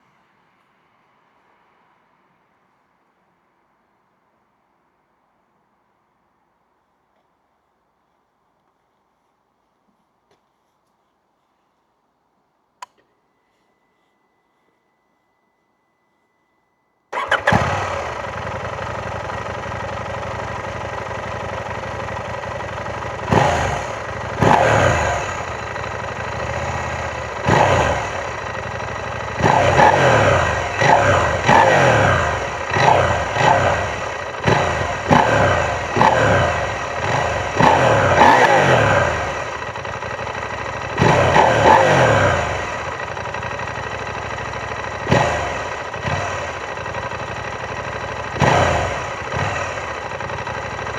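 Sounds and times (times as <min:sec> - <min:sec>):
motorcycle engine idling and revving: 0:17.1 - 0:50.9.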